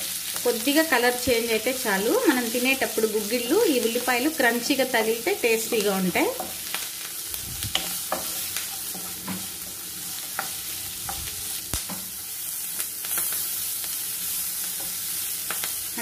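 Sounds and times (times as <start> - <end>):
onions sizzling in hot oil: 0.0 - 16.0
spatula knocking and scraping pan: 7.7 - 11.3.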